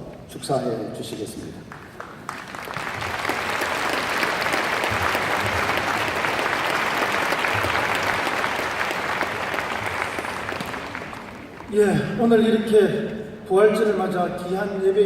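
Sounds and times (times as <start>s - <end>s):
congregation applauding: 1.7s - 12.1s.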